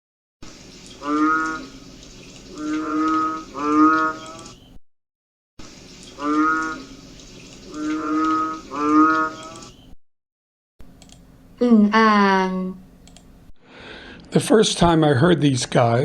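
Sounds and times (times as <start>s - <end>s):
frogs calling with deep moo-like calls: 0.9s - 4.6s, 6.0s - 9.8s.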